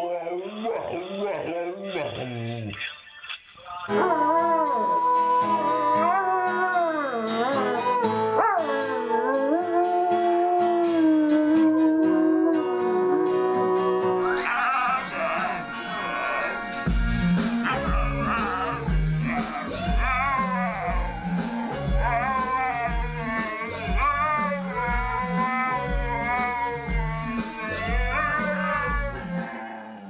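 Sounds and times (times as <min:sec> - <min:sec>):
music: 0:00.0 - 0:30.0
dog howling: 0:03.9 - 0:15.4, 0:18.1 - 0:30.0.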